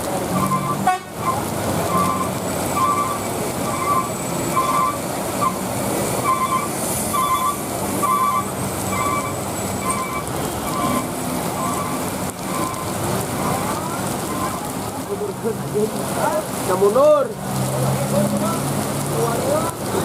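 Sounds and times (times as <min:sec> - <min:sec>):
traffic noise: 0:00.0 - 0:20.0
truck reversing alarm beeping: 0:01.9 - 0:05.6, 0:06.2 - 0:12.8.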